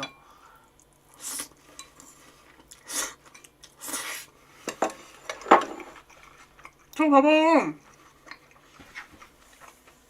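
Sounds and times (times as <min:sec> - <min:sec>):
person chewing crunchy food: 0:05.8 - 0:07.0.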